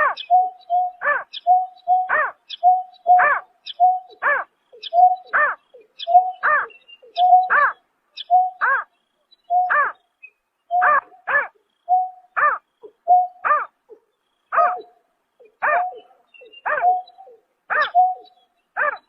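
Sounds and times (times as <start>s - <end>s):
bird calling with hoots: 0.0s - 19.0s.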